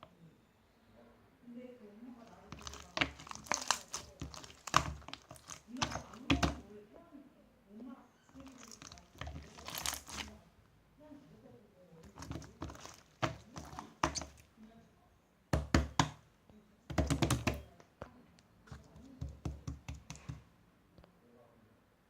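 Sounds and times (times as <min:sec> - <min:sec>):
sharp knocks and taps: 0:02.5 - 0:06.6, 0:12.0 - 0:14.4, 0:15.5 - 0:16.2, 0:16.9 - 0:17.7, 0:18.7 - 0:20.5.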